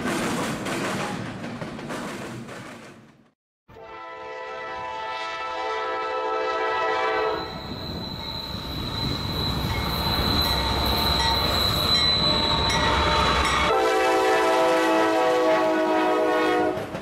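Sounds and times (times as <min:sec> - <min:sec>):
train horn chord: 0:03.7 - 0:07.5, 0:13.5 - 0:16.9
high wheel squeal: 0:07.2 - 0:13.7.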